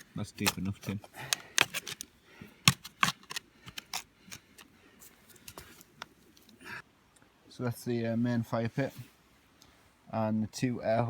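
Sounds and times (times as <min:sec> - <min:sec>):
spade digging in soil: 0:00.0 - 0:04.7.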